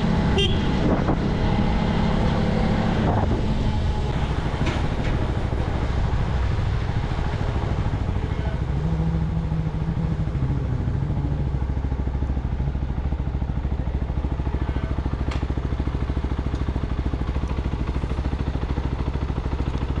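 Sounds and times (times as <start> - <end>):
single-cylinder engine running: 0.0 - 20.0.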